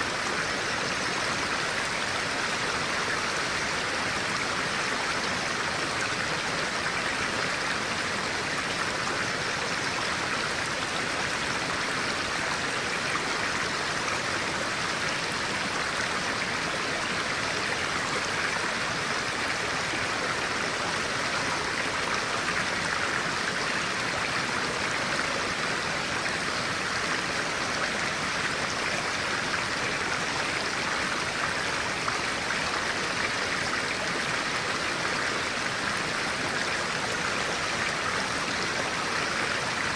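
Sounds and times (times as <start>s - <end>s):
stream of water running: 0.0s - 39.9s.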